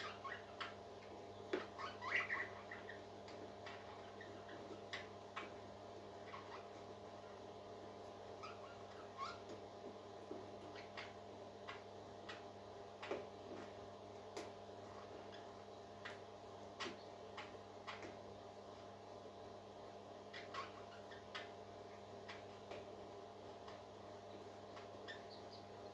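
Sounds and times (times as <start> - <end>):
parakeets chirping: 0.0 - 5.5, 6.2 - 7.4, 8.4 - 9.4, 10.6 - 12.4, 20.3 - 21.6, 22.2 - 22.6, 24.5 - 25.9.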